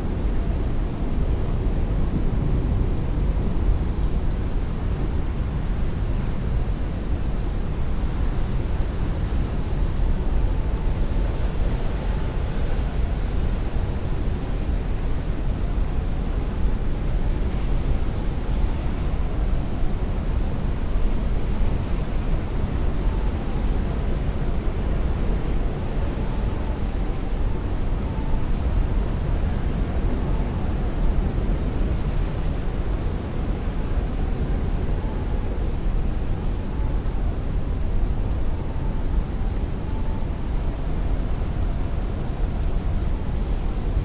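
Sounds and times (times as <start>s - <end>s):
heavy rain on a window: 0.1s - 44.0s.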